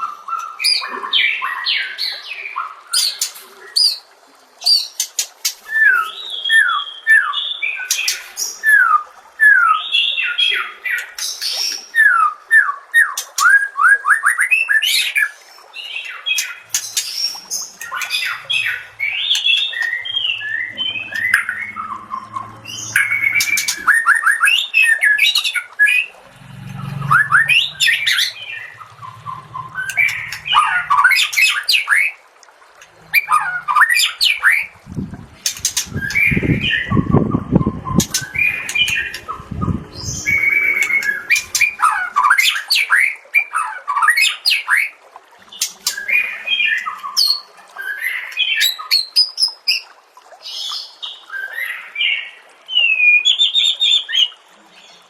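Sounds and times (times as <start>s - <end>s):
low rumbling noise: 17.8s - 24.7s, 25.8s - 31.8s, 32.8s - 42.7s.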